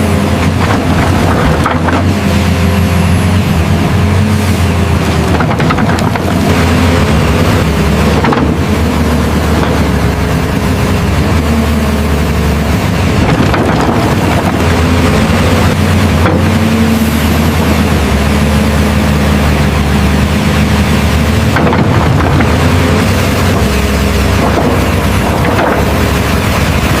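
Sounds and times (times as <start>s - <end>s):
engine-like drone: 0.0s - 27.0s.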